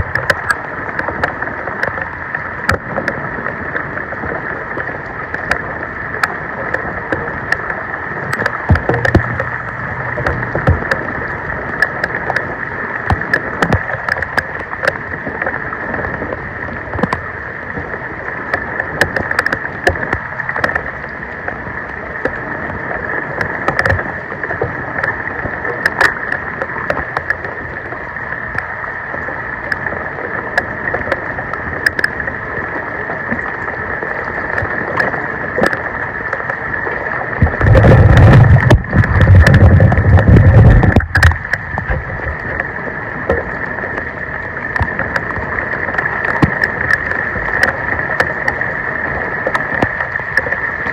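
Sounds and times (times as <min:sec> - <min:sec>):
small clicks and knocks: 0:00.0 - 0:03.2, 0:04.8 - 0:05.6, 0:06.2 - 0:15.6, 0:16.2 - 0:17.3, 0:18.5 - 0:21.0, 0:23.4 - 0:27.6, 0:30.6 - 0:32.2, 0:34.5 - 0:36.6, 0:37.4 - 0:44.1, 0:44.7 - 0:48.7, 0:49.4 - 0:50.9
floodwater splashing and rushing: 0:00.0 - 0:50.9.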